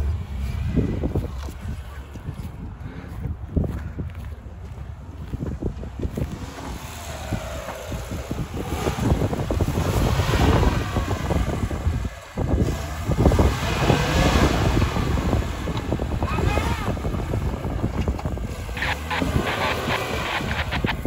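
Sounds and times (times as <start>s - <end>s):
wind buffeting microphone: 0.0s - 21.0s
engine revving up and down: 6.0s - 21.0s.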